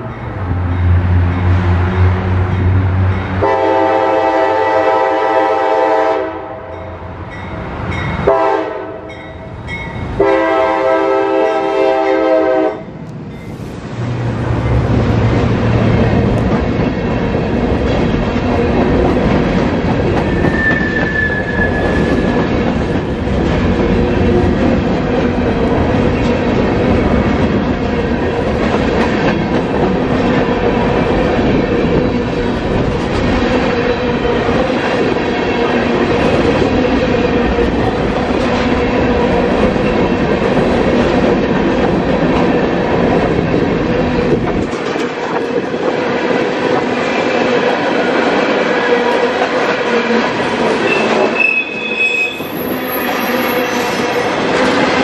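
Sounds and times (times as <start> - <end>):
locomotives rumbling past: 0.0 - 4.6, 13.0 - 51.4
locomotive air horn: 3.4 - 6.7, 8.3 - 9.2, 10.2 - 12.9
freight cars clattering on rails: 14.2 - 51.4
wheel squeal: 20.3 - 22.6, 50.8 - 54.4.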